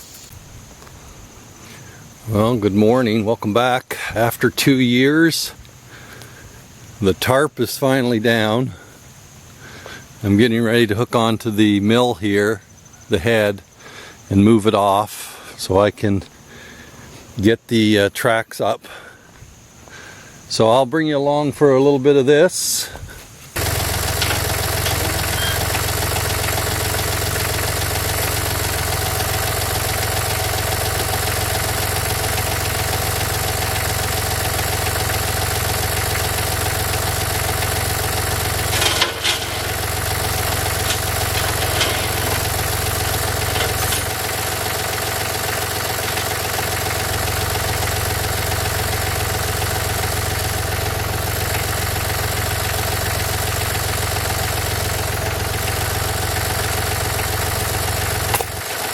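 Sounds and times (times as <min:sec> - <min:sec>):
tractor engine idling: 0:01.8 - 0:15.0, 0:22.6 - 0:58.9.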